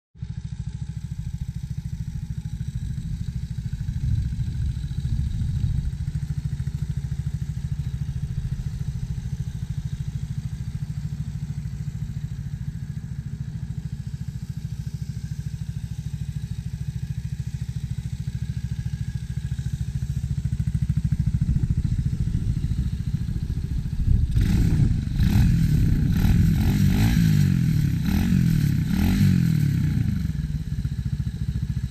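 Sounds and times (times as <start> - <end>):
dirt bike engine idling and revving: 0.2 - 31.9.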